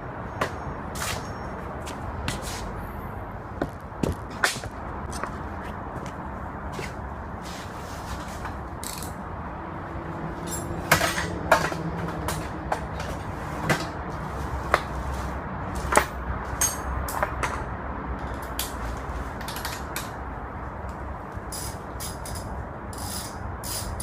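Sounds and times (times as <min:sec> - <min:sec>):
hand tools clinking on metal: 0:10.4 - 0:12.5, 0:15.9 - 0:17.6.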